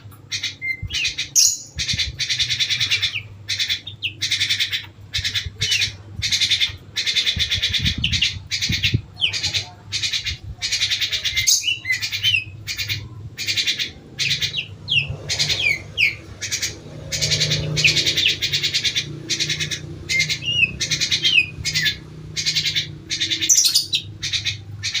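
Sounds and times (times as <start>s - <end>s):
pet birds chattering: 0.0s - 25.0s.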